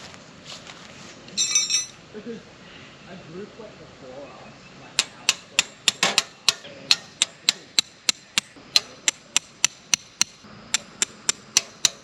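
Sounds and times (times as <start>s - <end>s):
ringing hammer strikes: 1.4s - 2.0s, 5.0s - 12.0s.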